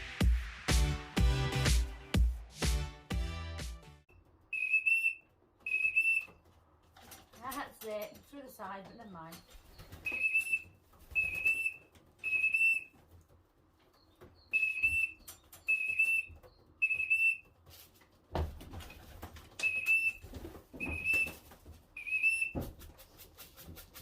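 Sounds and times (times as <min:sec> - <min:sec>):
short whistle notes: 0:04.6 - 0:06.3.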